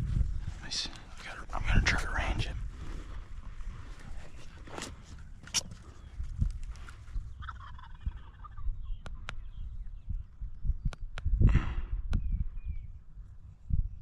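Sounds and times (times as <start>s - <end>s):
wind rumble on microphone: 0.0s - 14.0s
turkey gobbling: 7.3s - 9.0s
sharp clicks: 10.8s - 11.3s.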